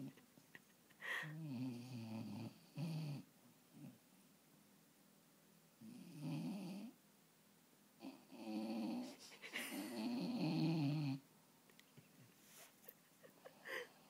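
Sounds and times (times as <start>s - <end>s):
dog snoring: 1.3s - 4.0s, 5.8s - 7.0s, 8.0s - 9.1s, 10.0s - 11.2s.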